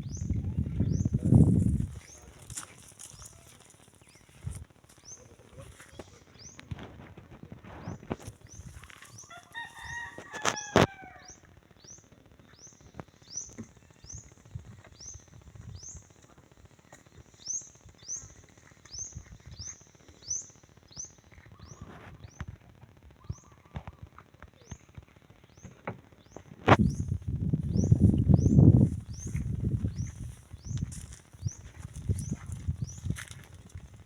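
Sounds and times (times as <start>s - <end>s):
rooster crowing: 9.2s - 11.4s.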